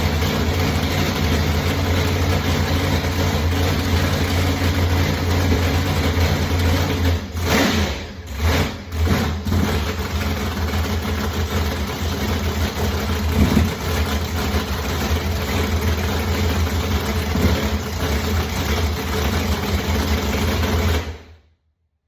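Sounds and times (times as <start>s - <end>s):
car engine idling: 0.0s - 21.2s.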